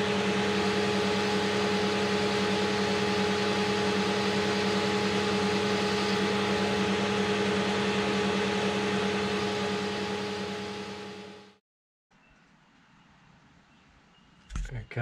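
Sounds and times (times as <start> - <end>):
metal lathe motor whine: 0.0 - 11.6.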